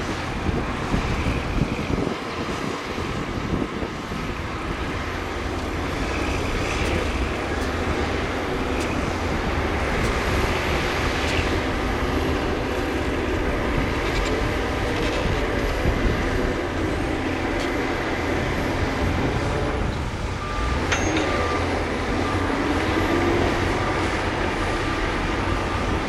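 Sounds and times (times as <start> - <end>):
diesel machinery rumbling: 0.0 - 26.0
metallic clanks: 20.8 - 21.7.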